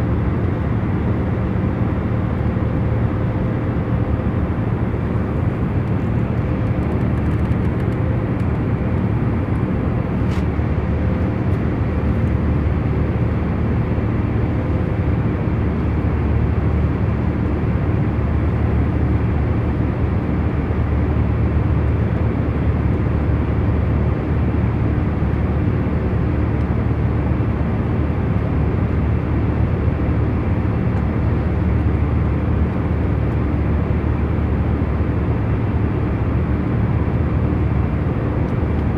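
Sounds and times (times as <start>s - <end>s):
airliner engine and airflow rumble: 0.0s - 38.9s.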